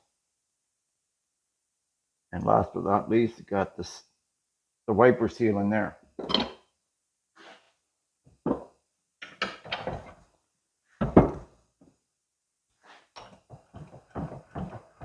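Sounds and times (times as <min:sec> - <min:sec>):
tools knocking and clunking: 0:06.2 - 0:06.6, 0:08.4 - 0:10.2, 0:11.0 - 0:11.5, 0:13.1 - 0:15.0.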